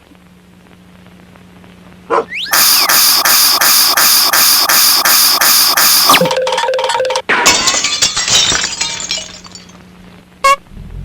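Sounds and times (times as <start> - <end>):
steady hum-like tone: 0.0 - 11.0
rising whistle: 2.3 - 6.2.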